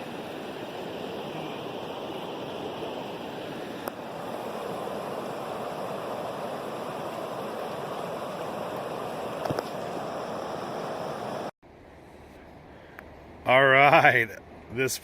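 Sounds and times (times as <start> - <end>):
river water flowing: 0.0 - 11.5.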